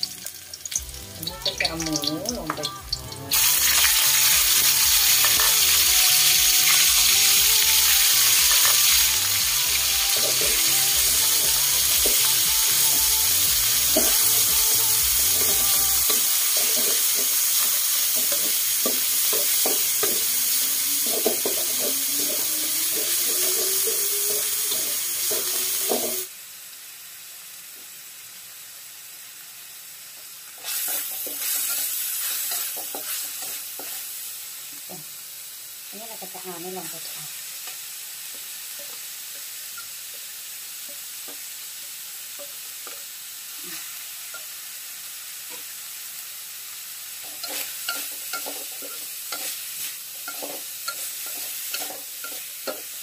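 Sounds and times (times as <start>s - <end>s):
meat sizzling in hot oil: 0.0s - 53.0s
spatula scraping a wok: 15.4s - 26.3s, 30.6s - 34.2s, 47.2s - 53.0s.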